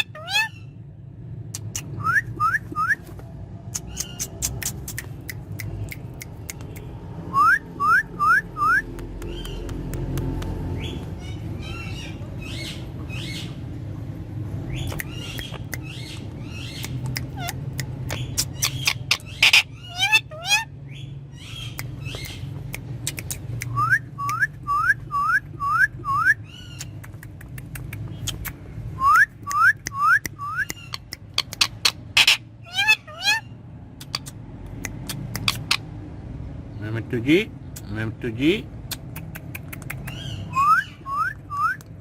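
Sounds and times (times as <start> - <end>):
parakeet calls and squawks: 0.0 - 1.0, 3.7 - 5.6, 7.8 - 9.9, 10.7 - 13.8, 14.6 - 28.6, 29.6 - 36.0, 39.0 - 41.8
parakeet rising whistles: 7.3 - 8.9, 40.2 - 41.8.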